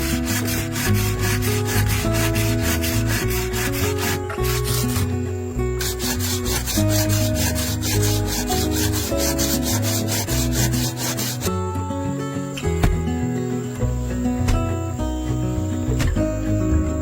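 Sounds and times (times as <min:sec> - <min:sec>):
hand saw cutting wood: 0:00.0 - 0:05.2, 0:05.8 - 0:11.5
background music with bass: 0:00.0 - 0:17.0.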